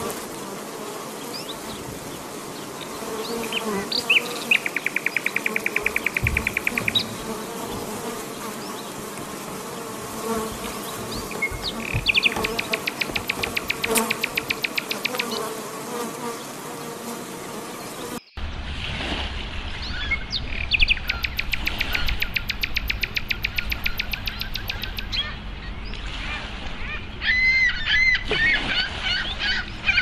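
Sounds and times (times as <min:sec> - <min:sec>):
bees buzzing: 0:00.0 - 0:18.2
high chirps: 0:04.2 - 0:07.3, 0:11.3 - 0:15.4, 0:20.6 - 0:25.2
rapid trills: 0:11.2 - 0:15.4.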